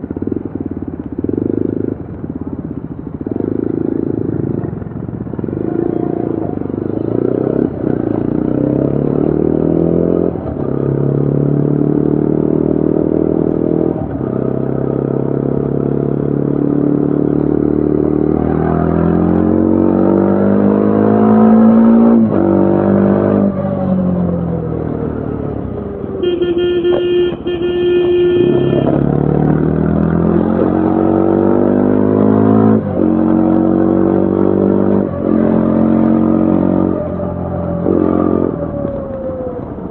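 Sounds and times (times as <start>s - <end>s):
motorcycle engine accelerating: 0.0s - 39.9s
horn: 26.2s - 29.1s.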